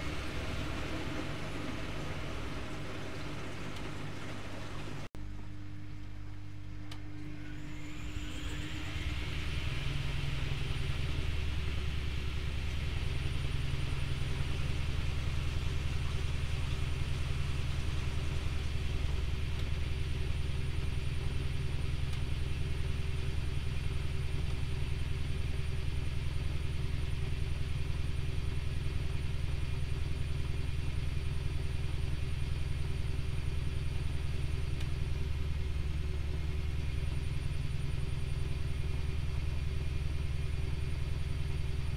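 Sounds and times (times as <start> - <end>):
washing machine spinning: 0.0 - 41.9.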